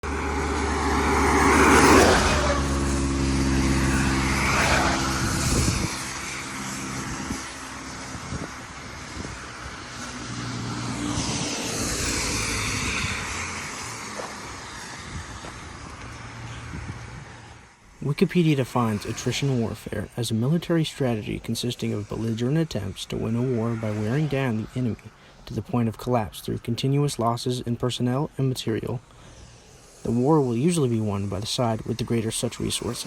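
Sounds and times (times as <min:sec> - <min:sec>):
low engine hum: 0:00.0 - 0:20.5
vehicles whooshing by: 0:00.0 - 0:33.0.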